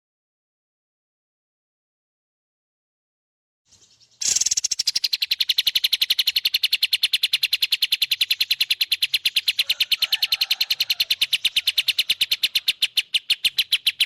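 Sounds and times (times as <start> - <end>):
songbird rattling trill: 3.7 - 14.0.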